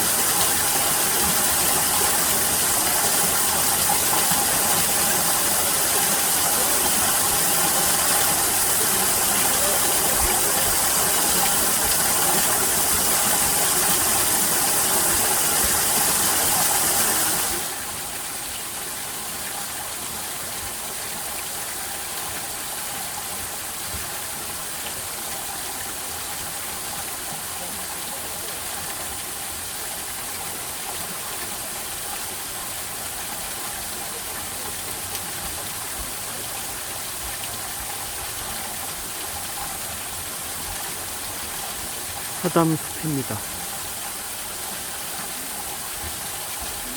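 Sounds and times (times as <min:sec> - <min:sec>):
water rushing: 0:00.0 - 0:20.2, 0:31.5 - 0:46.9.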